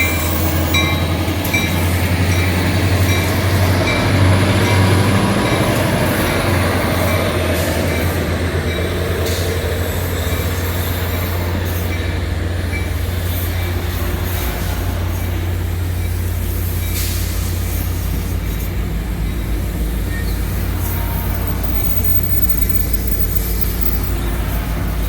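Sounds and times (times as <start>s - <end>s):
train rumbling on rails: 0.0s - 25.0s
thin high tone: 20.9s - 24.4s.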